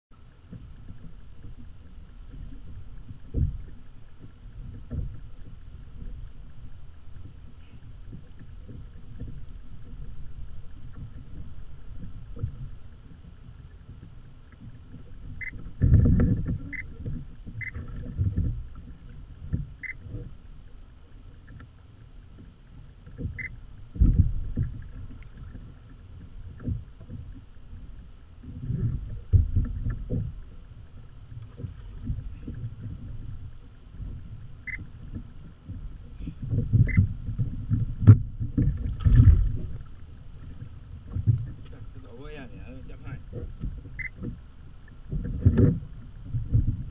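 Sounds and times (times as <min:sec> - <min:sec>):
water knocking against kayak hull: 0:34.0 - 0:41.9.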